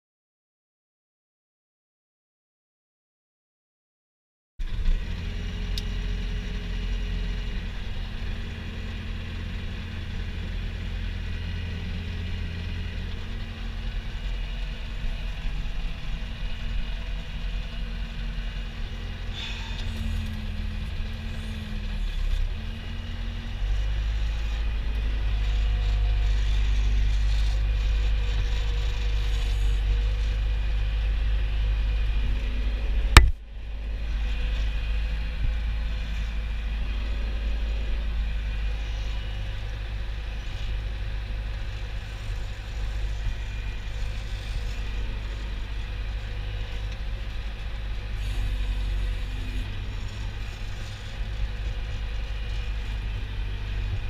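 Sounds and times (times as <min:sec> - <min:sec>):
vehicle engine rumbling: 0:04.6 - 0:54.0.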